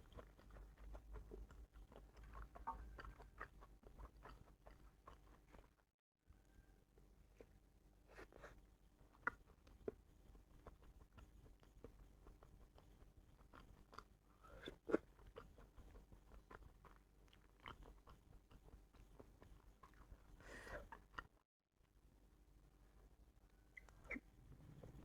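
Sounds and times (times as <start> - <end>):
chewing and mouth sounds: 0.0 - 5.8, 7.4 - 21.4.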